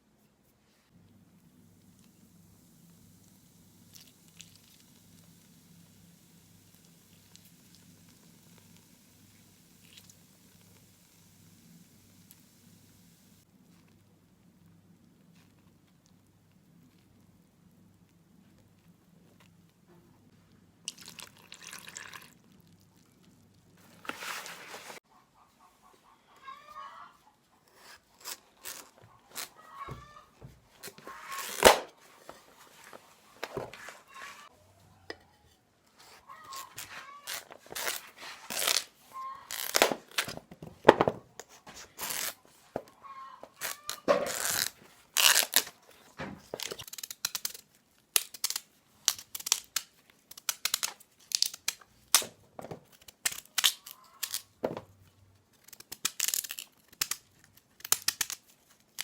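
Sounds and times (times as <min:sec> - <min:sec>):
rustling and crinkling of packaging: 0:23.7 - 0:25.0, 0:27.8 - 0:34.5, 0:36.0 - 0:47.6.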